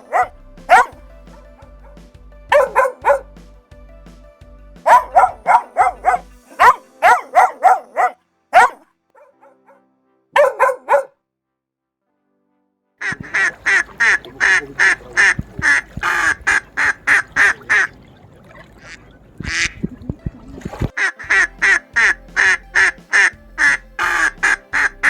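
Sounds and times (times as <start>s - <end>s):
dog barking: 0.0s - 3.3s, 4.9s - 9.8s, 10.4s - 11.2s
duck quacking: 13.0s - 17.9s, 22.4s - 24.9s.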